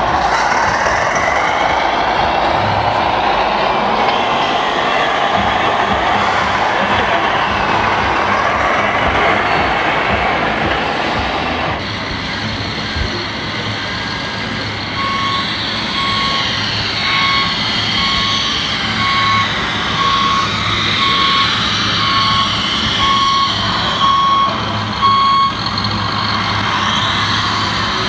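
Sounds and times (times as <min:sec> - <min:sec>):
reversing beeper short high beeps: 0:14.4 - 0:28.0.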